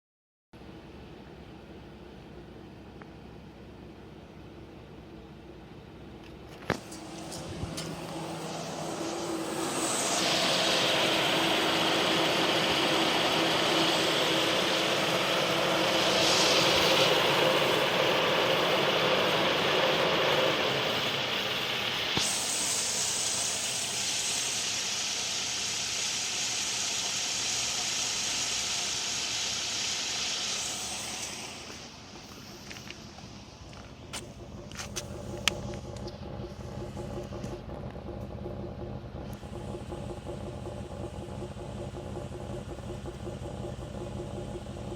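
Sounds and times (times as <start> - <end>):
car engine running: 0.6 - 44.9
steady hiss: 6.7 - 37.6.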